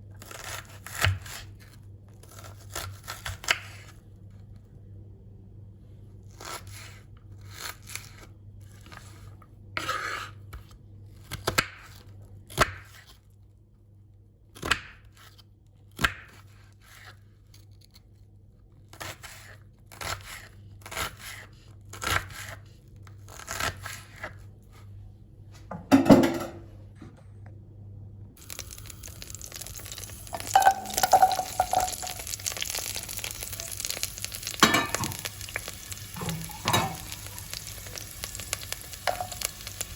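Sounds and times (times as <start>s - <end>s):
food sizzling in hot pan: 28.4s - 39.9s.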